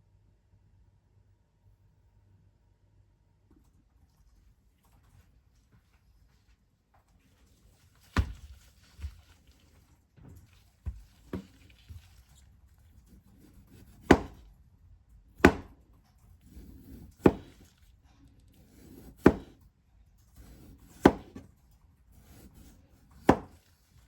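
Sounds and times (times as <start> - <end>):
knife chopping on cutting board: 13.3 - 14.5, 15.4 - 15.8, 16.4 - 17.7, 18.6 - 19.6, 20.4 - 21.5, 22.2 - 23.7.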